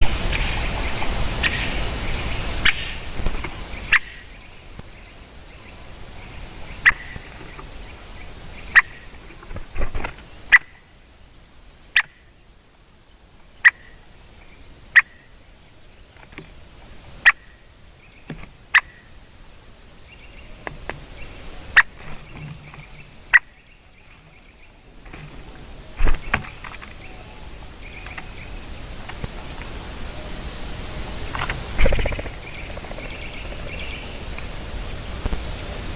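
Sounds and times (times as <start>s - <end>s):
steady hiss: 0.0s - 35.9s
woodpecker ticks: 31.4s - 34.5s.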